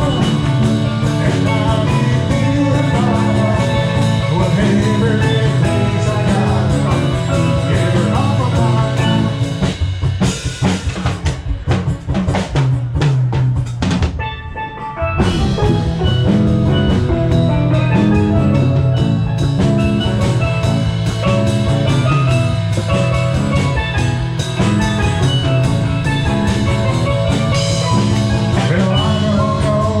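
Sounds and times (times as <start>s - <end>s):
live band playing: 0.0s - 30.0s
steel drums: 0.0s - 30.0s
sharp drum hits: 15.1s - 29.3s.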